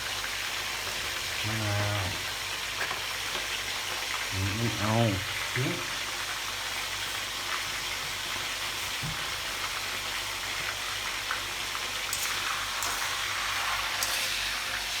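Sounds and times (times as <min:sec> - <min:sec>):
pork sizzling in hot oil: 0:00.0 - 0:15.0.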